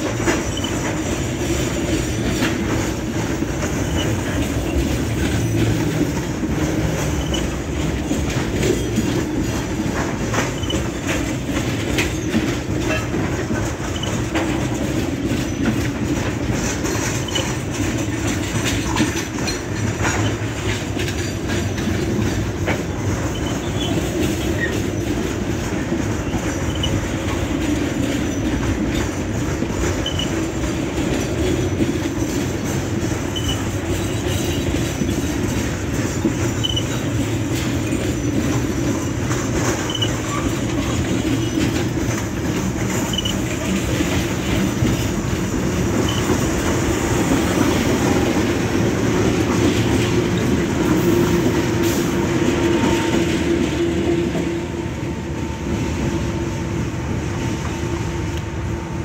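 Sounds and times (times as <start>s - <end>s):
wheels clicking over rail joints: 0.0s - 55.6s
steel wheels rumbling on rails: 0.0s - 59.0s.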